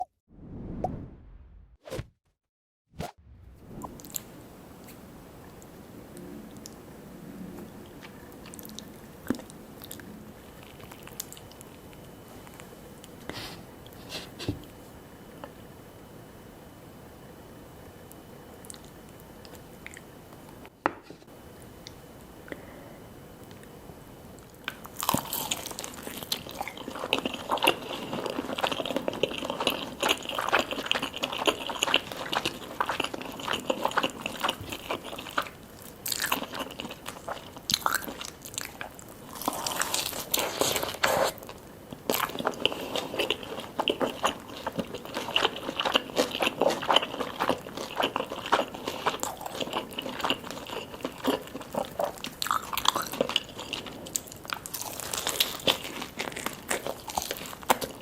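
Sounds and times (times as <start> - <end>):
crunchy fried chicken chewing: 24.6 - 58.0.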